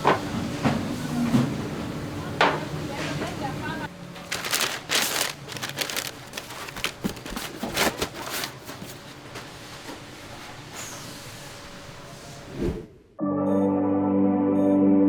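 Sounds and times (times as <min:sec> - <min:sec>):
faint handling noise: 0:04.1 - 0:09.1.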